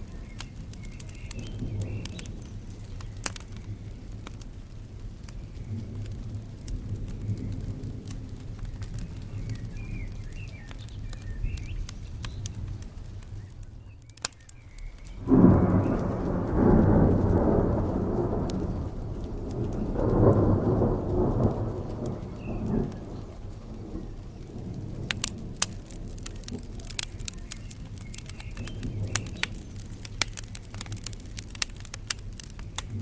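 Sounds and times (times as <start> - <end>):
crackling fire with pops: 0.0 - 33.0
rain: 0.0 - 33.0
low rumble: 15.2 - 31.4
thunderclap rolling: 15.2 - 33.0.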